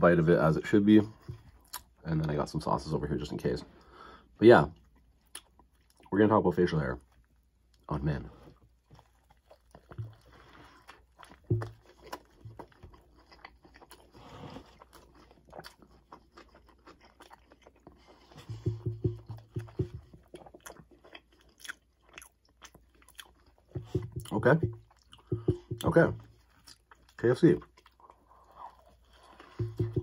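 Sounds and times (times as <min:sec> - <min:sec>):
person chewing crispy sandwich: 0:04.8 - 0:06.1, 0:06.9 - 0:30.0
breading crunching: 0:06.9 - 0:30.0.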